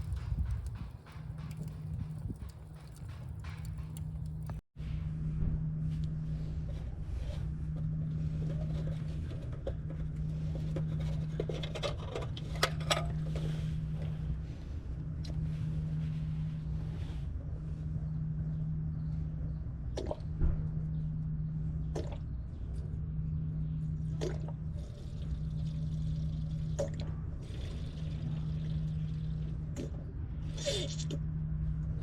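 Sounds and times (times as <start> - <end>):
firewood popping and crackling: 0.0 - 4.6
steady low hum: 0.0 - 32.0.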